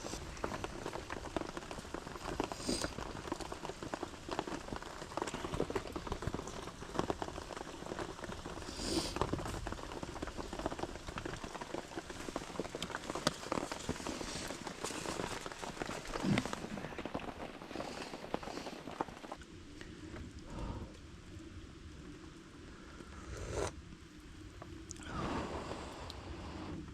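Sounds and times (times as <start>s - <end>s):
rain patter: 0.0s - 26.9s
brief louder hisses: 23.2s - 23.7s.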